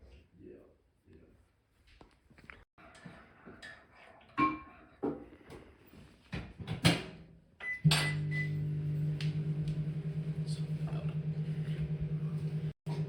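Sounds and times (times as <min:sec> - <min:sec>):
dishes and cutlery clinking: 0:02.9 - 0:05.2.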